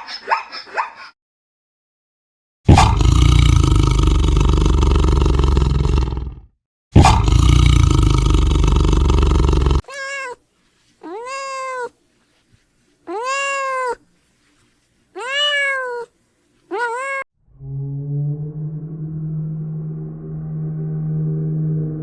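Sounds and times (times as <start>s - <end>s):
cat meowing: 9.8s - 10.4s, 11.0s - 12.0s, 13.1s - 14.0s, 15.2s - 16.1s, 16.7s - 17.3s
loud rough low sound: 17.4s - 22.0s.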